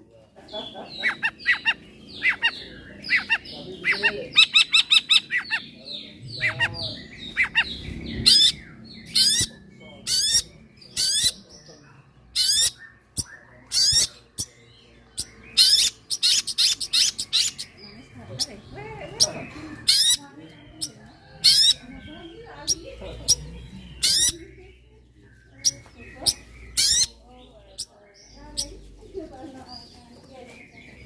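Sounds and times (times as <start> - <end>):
harsh scratchy rising bird calls: 1.0 - 11.4.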